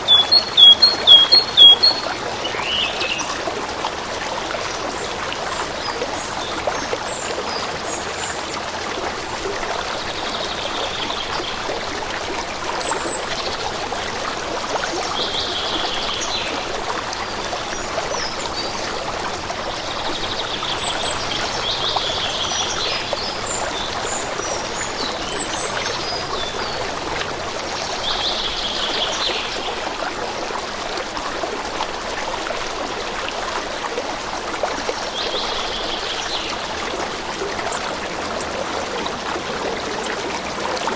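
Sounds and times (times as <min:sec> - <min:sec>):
high bird chirps: 0:00.0 - 0:03.2
birds singing: 0:00.0 - 0:03.4, 0:15.0 - 0:29.8
stream running: 0:00.0 - 0:40.9.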